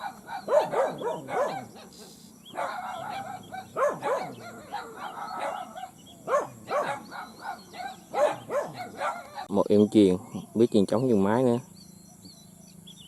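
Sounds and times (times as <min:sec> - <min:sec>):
dog barking: 0:00.0 - 0:09.5.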